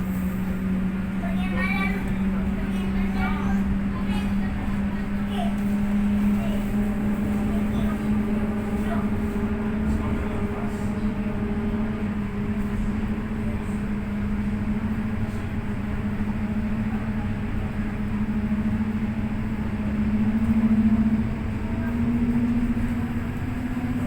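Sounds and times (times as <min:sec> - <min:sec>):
tram motor hum: 0:00.0 - 0:24.0
wheels rumbling: 0:00.0 - 0:24.0.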